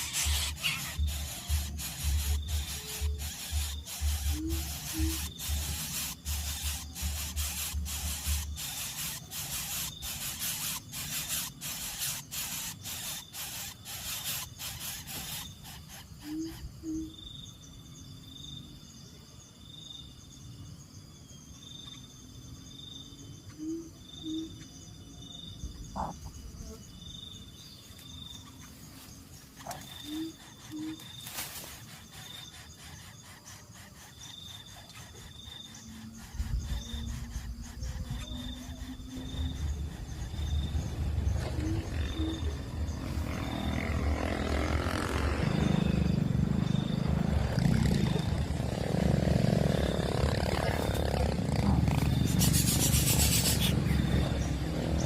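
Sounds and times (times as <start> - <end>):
dry clicking pulses: 0.0 - 16.6
high pulsing insect chirp: 0.0 - 55.0.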